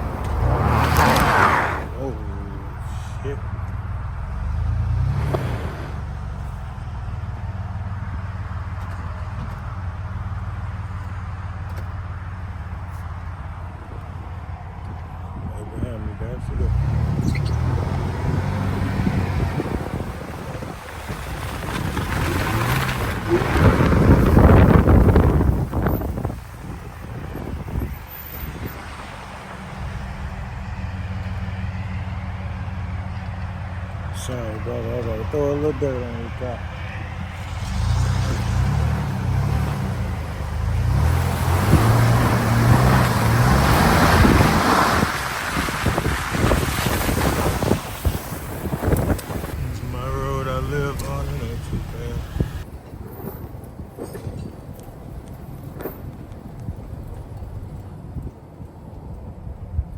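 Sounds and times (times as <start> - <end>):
loud rough rush: 0.0 - 3.5, 4.4 - 7.0, 15.5 - 52.8
vehicle engine running: 0.0 - 52.7
wind buffeting microphone: 14.8 - 31.4, 34.6 - 59.9.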